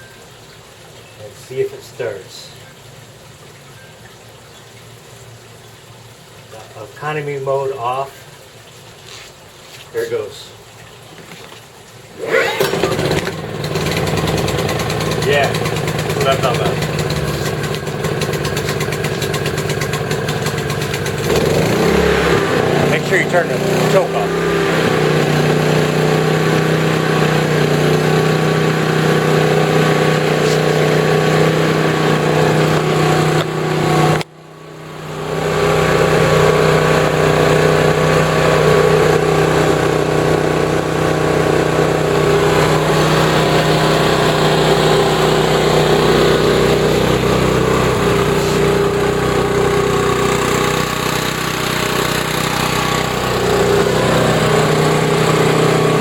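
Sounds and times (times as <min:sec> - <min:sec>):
generator engine running: 0:12.2 - 0:56.0.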